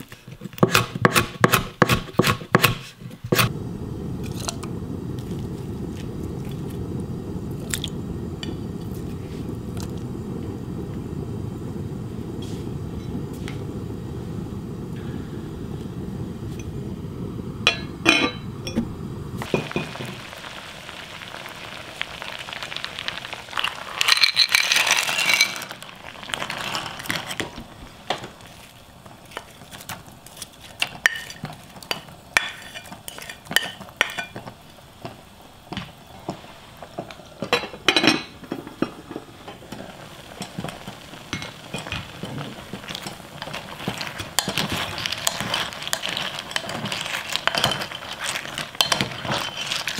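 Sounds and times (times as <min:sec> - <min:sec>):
water boiling and bubbling: 0:00.0 - 0:49.9
dish and spoon clinking on pot: 0:17.7 - 0:18.8, 0:30.8 - 0:34.5, 0:44.4 - 0:48.0, 0:48.8 - 0:49.6.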